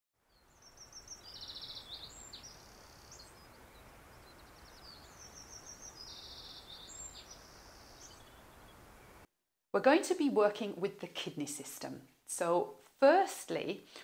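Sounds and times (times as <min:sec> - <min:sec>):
faint background hiss: 0:00.2 - 0:14.0
small bird trilled song: 0:00.3 - 0:09.2.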